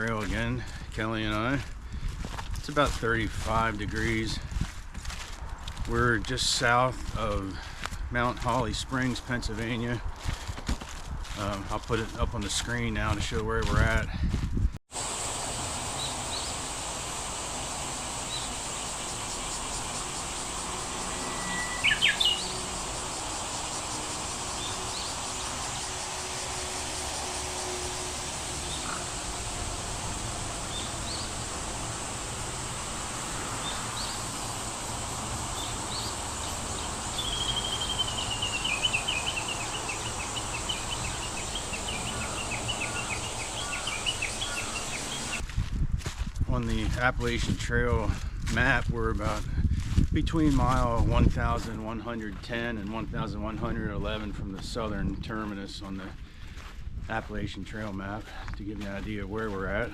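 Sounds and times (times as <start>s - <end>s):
steady high hiss: 14.9s - 45.4s
bird calls: 15.4s - 45.4s
bird trill falling in pitch: 21.2s - 22.5s
short bird chirps: 21.2s - 22.6s.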